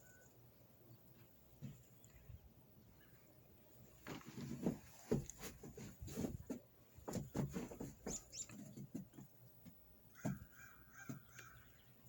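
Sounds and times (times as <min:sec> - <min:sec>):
soft crunches and rustles: 0:03.8 - 0:09.2.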